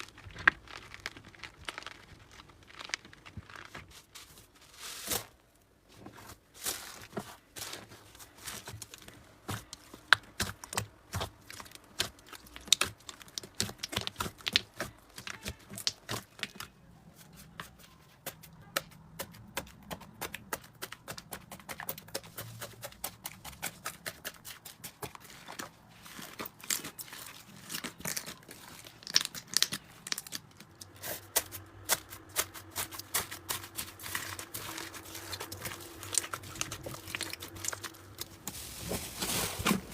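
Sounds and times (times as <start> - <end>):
slime squished by hand: 8.7 - 16.7.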